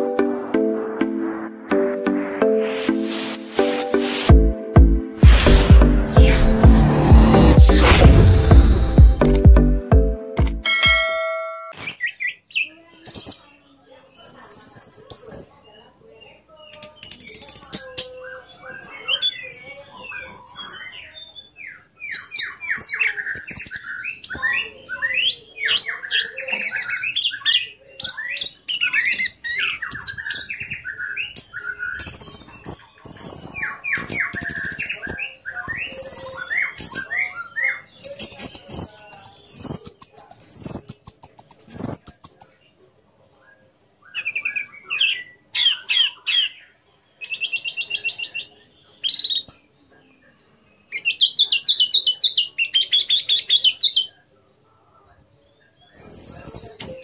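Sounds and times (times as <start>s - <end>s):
thrush singing: 0.0s - 11.7s.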